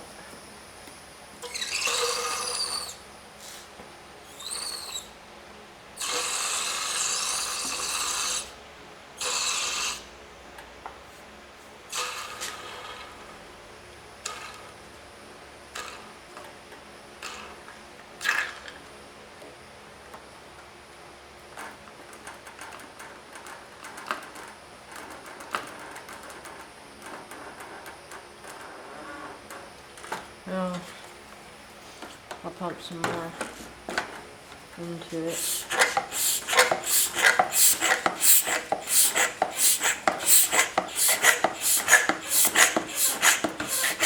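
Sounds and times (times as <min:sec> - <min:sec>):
brief squeak: 0:01.4 - 0:03.0, 0:04.3 - 0:05.1
oil extractor hose slurping: 0:01.4 - 0:03.0, 0:06.0 - 0:08.6, 0:09.2 - 0:10.1, 0:35.2 - 0:44.0
vacuum pump rasping rush: 0:35.0 - 0:44.0.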